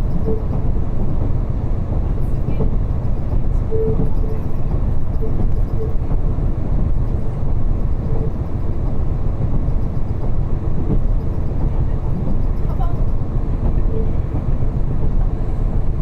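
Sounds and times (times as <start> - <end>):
railcar engine and wheels rumbling: 0.0 - 16.0.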